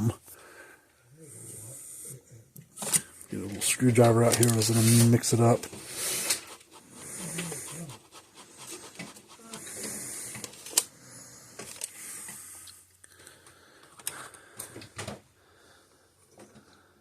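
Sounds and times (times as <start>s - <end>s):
screwdriver scraping epoxy: 6.0s - 10.5s.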